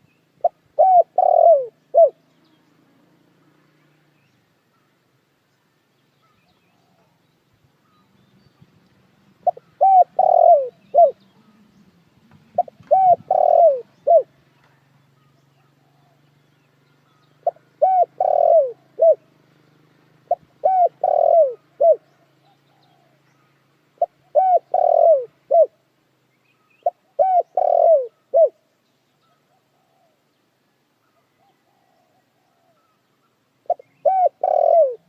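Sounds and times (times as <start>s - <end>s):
dove cooing: 0.4s - 2.2s, 9.4s - 11.6s, 12.4s - 14.4s, 17.4s - 19.3s, 20.2s - 23.2s, 24.0s - 25.8s, 26.8s - 28.6s, 29.2s - 30.3s, 31.1s - 33.0s, 33.6s - 35.0s.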